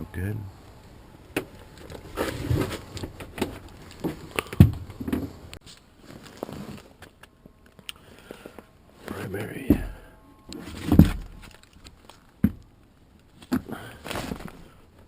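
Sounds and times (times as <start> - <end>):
rustling: 0.7 - 7.2, 7.8 - 15.0
knocks and thumps: 9.7 - 10.0, 10.8 - 11.5.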